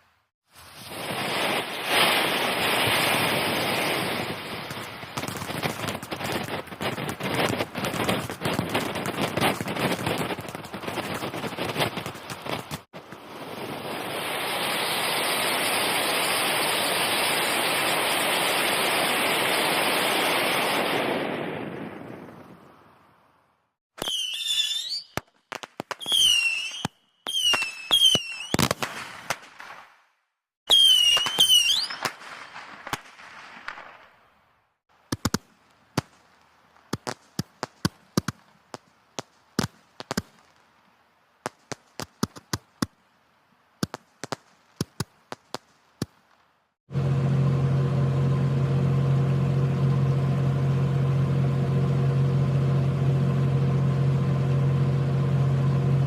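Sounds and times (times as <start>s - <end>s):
whistling fireworks: 0.0s - 23.0s, 23.9s - 40.7s, 41.4s - 42.9s, 43.8s - 46.4s
firework bangs and crackle: 0.5s - 22.7s, 24.0s - 34.4s, 35.0s - 40.7s, 41.4s - 42.9s, 43.8s - 46.5s
firecracker pops: 4.6s - 13.2s, 24.0s - 30.1s, 30.7s - 34.1s, 35.1s - 40.6s, 41.4s - 42.9s
steady machine hum: 46.9s - 56.0s.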